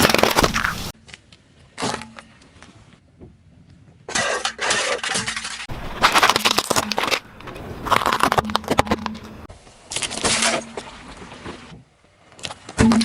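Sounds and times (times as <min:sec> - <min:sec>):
tyres crushing crunchy objects: 0:00.0 - 0:01.0, 0:04.2 - 0:11.7.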